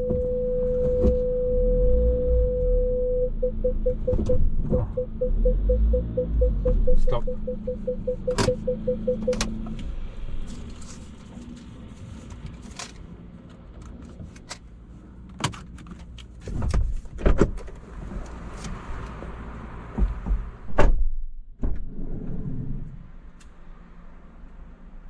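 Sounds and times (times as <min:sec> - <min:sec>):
knocks and clicks: 0:08.2 - 0:09.8
loud thump: 0:20.0 - 0:21.9.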